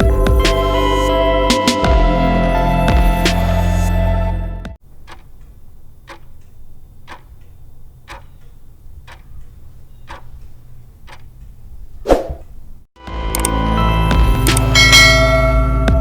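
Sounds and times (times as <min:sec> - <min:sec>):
clock ticking: 0:04.9 - 0:11.6.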